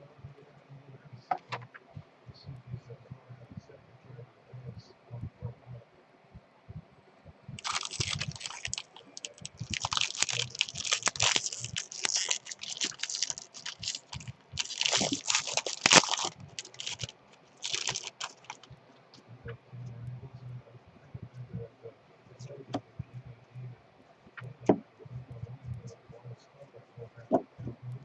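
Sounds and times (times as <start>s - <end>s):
wrapper tearing and crinkling: 7.6s - 18.7s.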